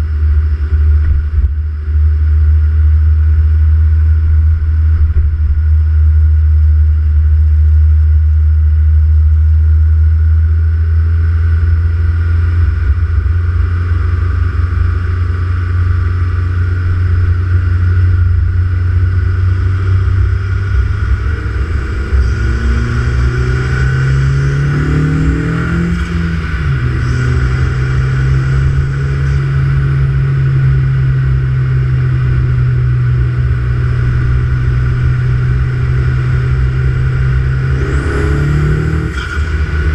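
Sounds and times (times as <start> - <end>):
turbocharged car engine revving: 0.0 - 39.9.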